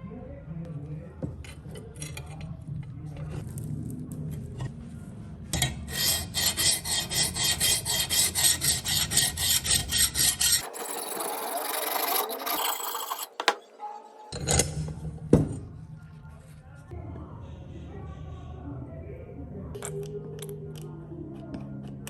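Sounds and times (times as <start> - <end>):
steady scraping: 1.4 - 17.0
rasping strokes on steel blade: 5.6 - 14.4.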